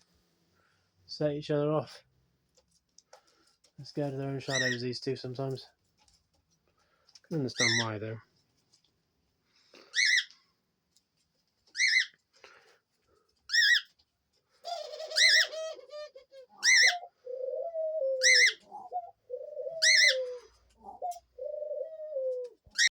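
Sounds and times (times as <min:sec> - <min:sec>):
cockatiel calls: 0:09.9 - 0:10.3, 0:11.7 - 0:12.1, 0:13.5 - 0:13.9, 0:14.7 - 0:21.2
doves cooing: 0:14.6 - 0:22.9.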